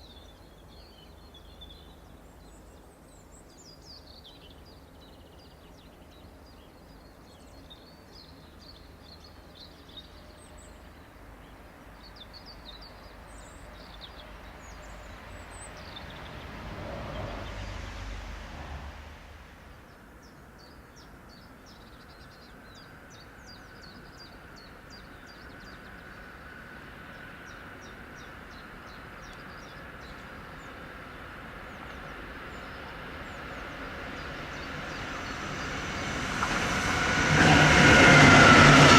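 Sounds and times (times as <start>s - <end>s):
approaching train rumble: 7.5s - 20.7s, 21.3s - 38.9s
passing noise: 15.7s - 19.9s, 32.2s - 38.9s.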